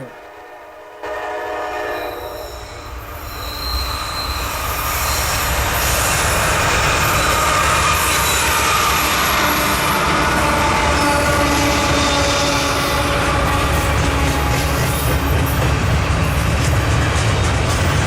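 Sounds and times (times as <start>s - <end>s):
train horn blast: 0.0s - 2.7s, 8.4s - 15.6s
train rumbling and clattering: 0.0s - 18.0s
wheel squeal: 2.0s - 12.9s.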